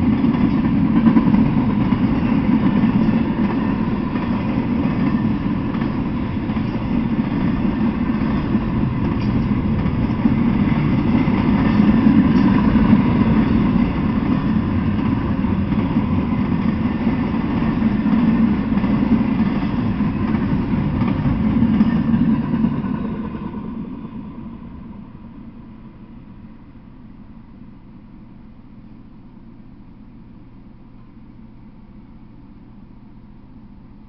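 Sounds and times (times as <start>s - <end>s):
train wheels rolling on track: 0.0s - 27.1s.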